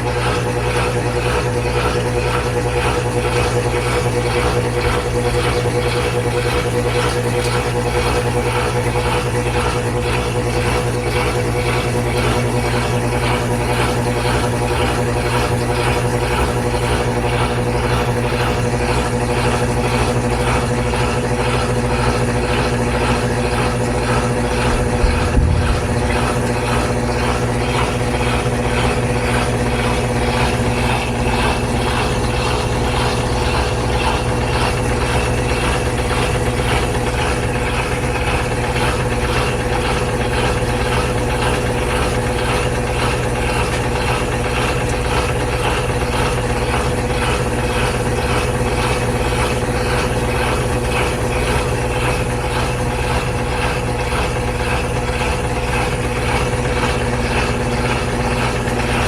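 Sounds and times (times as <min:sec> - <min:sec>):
washer spinning: 0:00.0 - 0:59.0
steady whining tone: 0:20.6 - 0:36.2.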